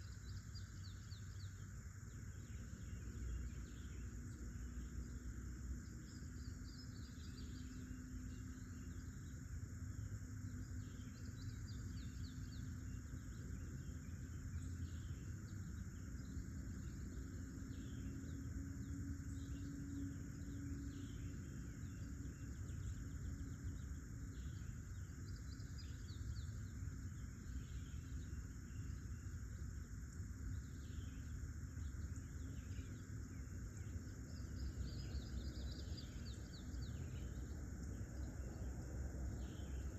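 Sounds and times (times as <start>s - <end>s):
insects chorus: 0.0s - 39.9s
bird chirps: 10.5s - 38.7s.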